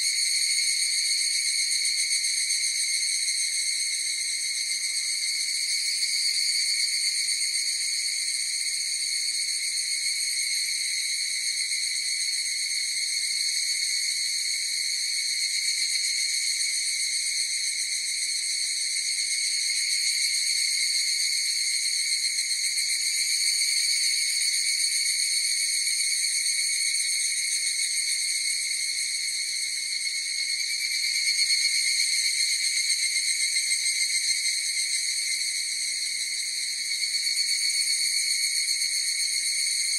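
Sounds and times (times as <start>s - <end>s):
cicadas chorus ringing trill: 0.0s - 39.9s.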